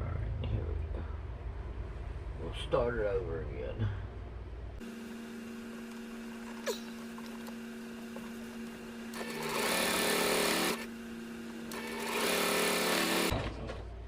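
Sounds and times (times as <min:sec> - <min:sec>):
steady low hum: 0:00.0 - 0:14.0
sewing machine stitching: 0:09.1 - 0:10.9, 0:11.6 - 0:13.3.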